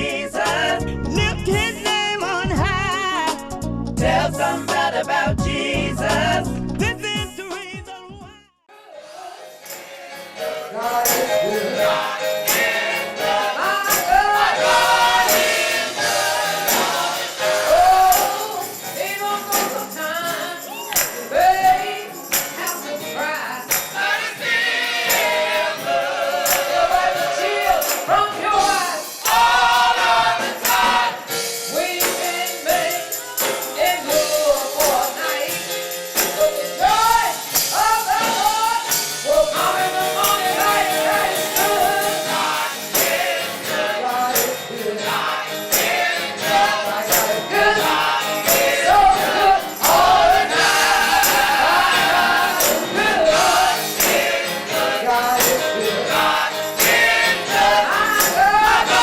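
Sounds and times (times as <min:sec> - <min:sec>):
gospel choir singing: 0:00.0 - 0:01.9, 0:03.9 - 0:06.8, 0:08.7 - 0:59.0
jingling percussion: 0:09.4 - 0:59.0
band playing: 0:38.4 - 0:59.0.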